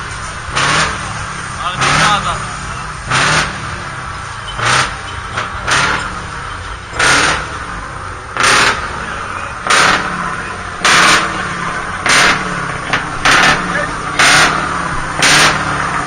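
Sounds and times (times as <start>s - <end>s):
heavy vehicle engines running: 0.0s - 16.0s.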